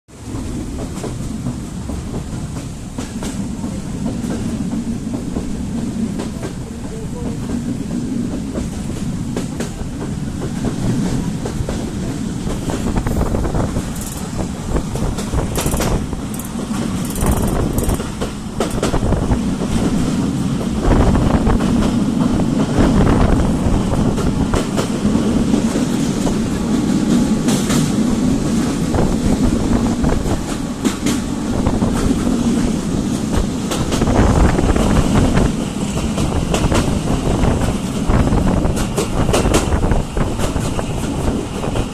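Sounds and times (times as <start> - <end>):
wheels clacking over rail joints: 0.1 - 20.8
freight train rumbling: 0.1 - 41.9.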